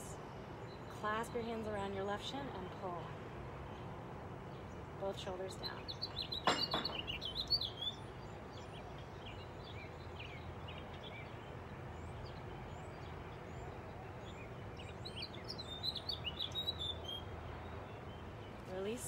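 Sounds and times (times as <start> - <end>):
low background noise: 0.0 - 19.0
songbirds chirping and singing: 4.5 - 19.0.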